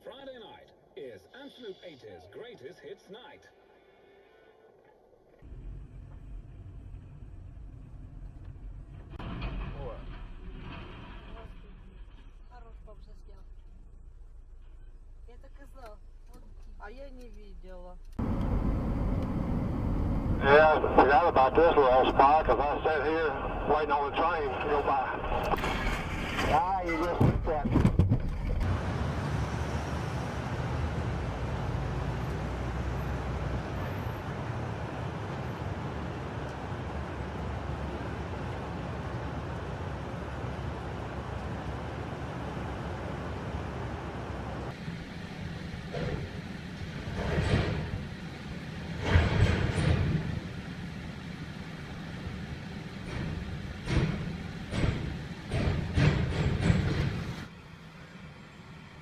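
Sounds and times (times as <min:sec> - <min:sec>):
low engine rumble: 0:05.3 - 0:59.0
irregular knocks and clatters: 0:08.2 - 0:12.4, 0:25.6 - 0:28.7, 0:48.9 - 0:50.7, 0:52.9 - 0:57.5
road noise hiss: 0:28.6 - 0:59.0.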